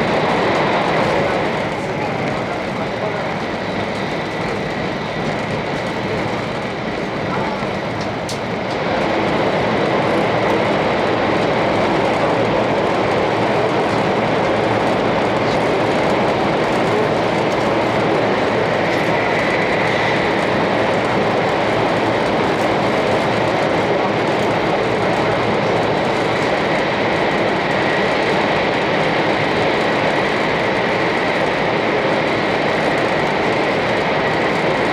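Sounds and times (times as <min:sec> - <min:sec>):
train running rumble: 0:00.0 - 0:34.9.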